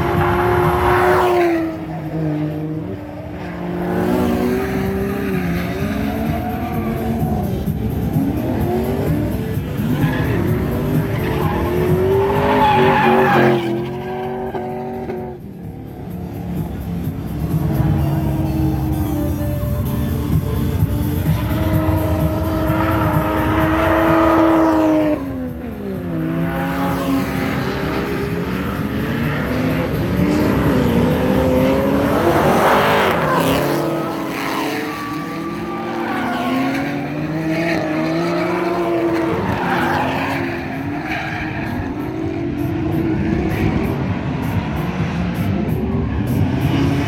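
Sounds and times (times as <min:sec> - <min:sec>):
car engines revving: 0:00.0 - 0:47.0
tyre squeal: 0:32.1 - 0:42.1.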